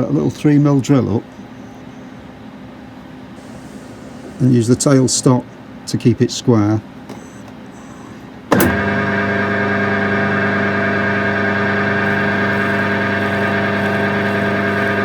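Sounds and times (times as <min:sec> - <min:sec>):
wood lathe motor humming: 0:08.5 - 0:15.0.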